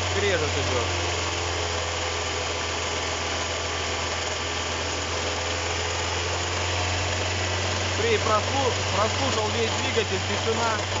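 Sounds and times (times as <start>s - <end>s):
alternator grinding: 0.0s - 11.0s
car engine idling: 0.0s - 11.0s.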